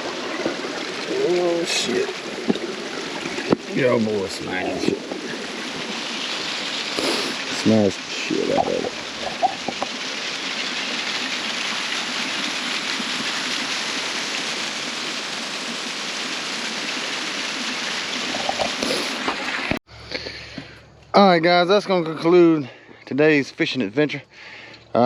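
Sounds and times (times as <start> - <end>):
water rushing over dam: 0.0 - 19.6.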